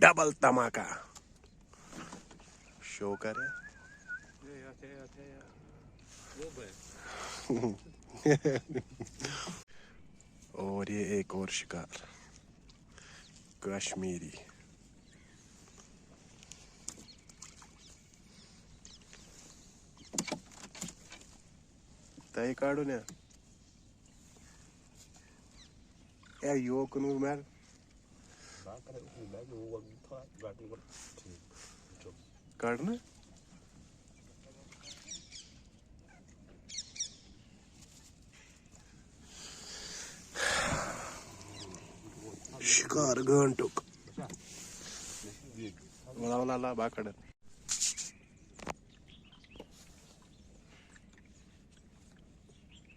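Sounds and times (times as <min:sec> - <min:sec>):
small birds chirping: 0:01.1 - 0:52.9
small bird chirping: 0:36.7 - 0:37.5.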